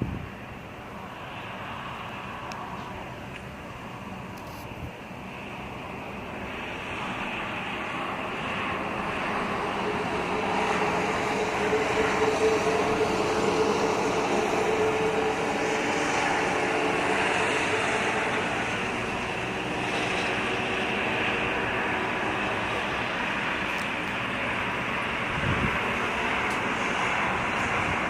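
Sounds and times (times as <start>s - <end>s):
wind: 0.0s - 28.0s
passing vehicle engine: 7.2s - 28.0s.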